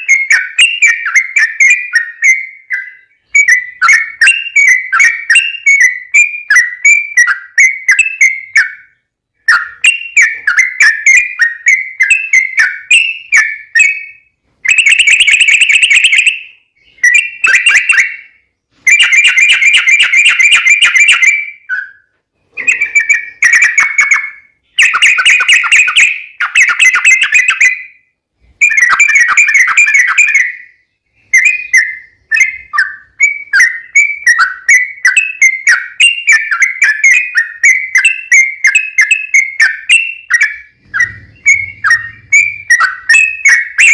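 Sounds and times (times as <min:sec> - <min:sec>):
bird singing and chattering: 0:00.0 - 0:28.0, 0:28.6 - 0:43.9.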